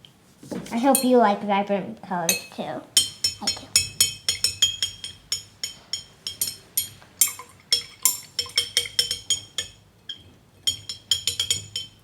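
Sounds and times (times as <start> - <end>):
utensil clinking against bottle: 2.4 - 12.0.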